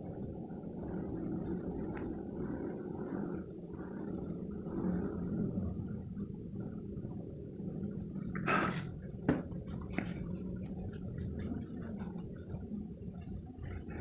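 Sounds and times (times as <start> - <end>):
steady low hum: 0.0 - 14.0
faint ticks: 0.9 - 2.6
pencil scratching on paper: 9.6 - 12.7.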